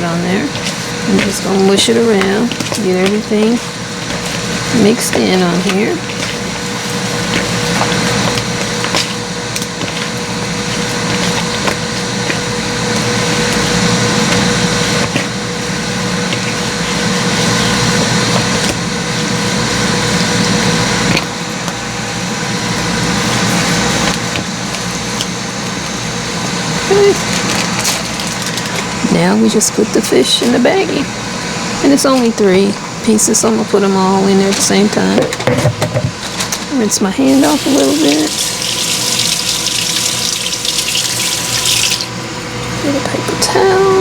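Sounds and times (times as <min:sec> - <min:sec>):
air fryer fan whirring: 0:00.0 - 0:44.0.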